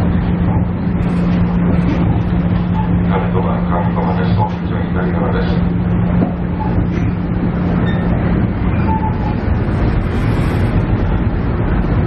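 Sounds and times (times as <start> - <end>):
diesel engine rumble: 0.0 - 12.0
train wheels on rails: 5.4 - 12.0.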